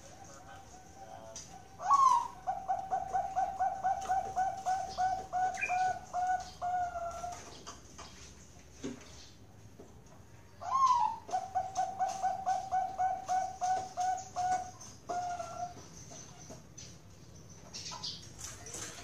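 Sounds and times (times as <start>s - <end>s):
dove cooing: 0.0s - 7.6s, 10.6s - 16.3s.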